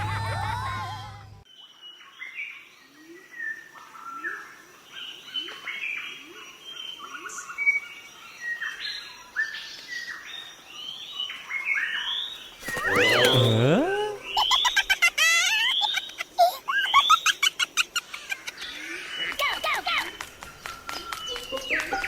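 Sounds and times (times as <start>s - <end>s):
birds chirping and calling: 12.4s - 14.9s.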